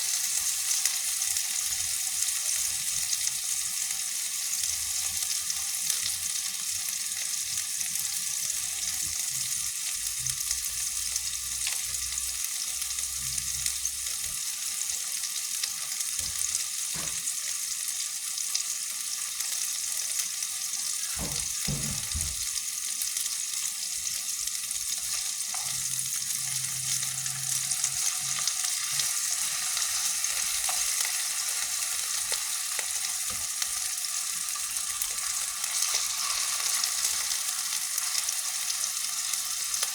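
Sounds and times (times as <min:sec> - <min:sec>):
meatballs sizzling in hot oil: 0:00.0 - 0:39.9
soft knocks: 0:21.2 - 0:22.5.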